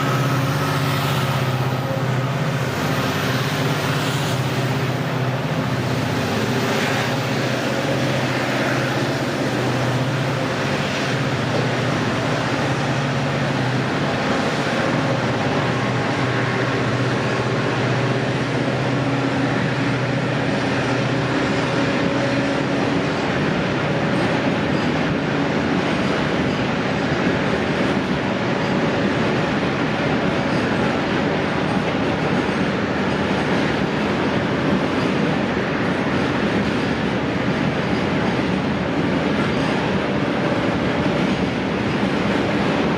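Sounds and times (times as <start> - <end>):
diesel locomotive engine drone: 0.0 - 42.9
train cars rumbling on rails: 0.0 - 42.9.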